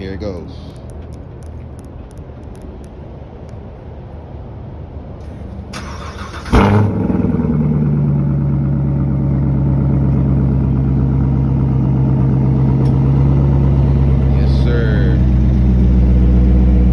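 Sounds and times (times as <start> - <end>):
car engine revving and idling: 5.3 - 16.9.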